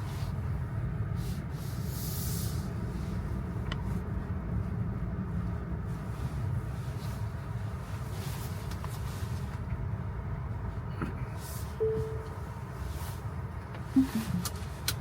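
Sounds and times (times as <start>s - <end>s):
short steady beep: 11.8s - 12.4s, 14.0s - 14.5s.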